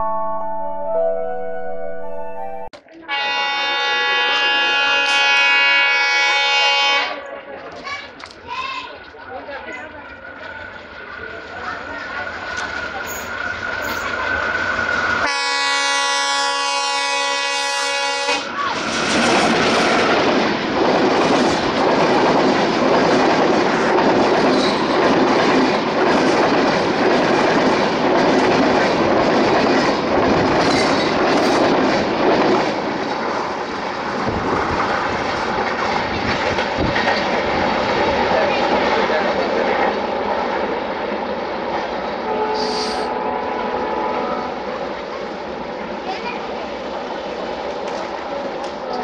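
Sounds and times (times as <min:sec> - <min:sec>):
locomotive horn blast: 0:03.1 - 0:07.1, 0:15.2 - 0:18.5, 0:42.2 - 0:44.6
train wheels clattering on rails: 0:18.6 - 0:40.1.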